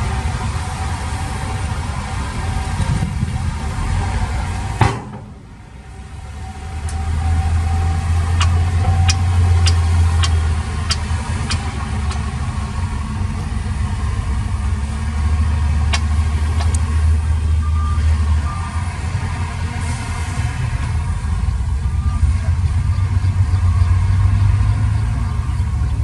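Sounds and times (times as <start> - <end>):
heavy diesel engine humming: 0.0 - 26.0
sharp clicks or knocks: 8.4 - 12.3.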